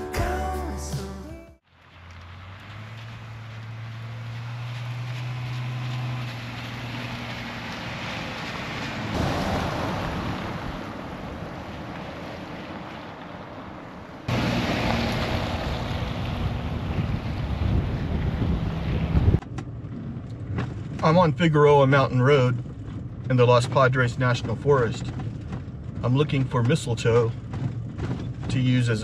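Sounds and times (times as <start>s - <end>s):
car engine humming: 0.0s - 29.0s
tyres on gravel road: 0.0s - 29.0s
wind buffeting microphone: 14.3s - 21.0s.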